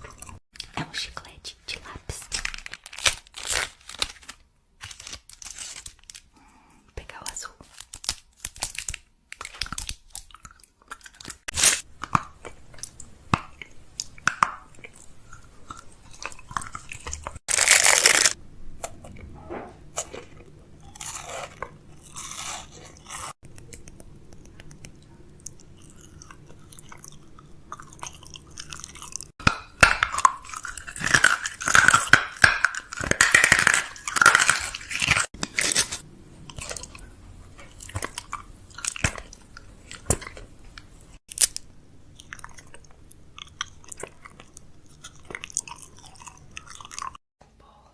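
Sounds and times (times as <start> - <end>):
snack packaging crinkling: 2.1 - 6.3, 7.2 - 13.0, 14.8 - 18.4, 30.1 - 47.2.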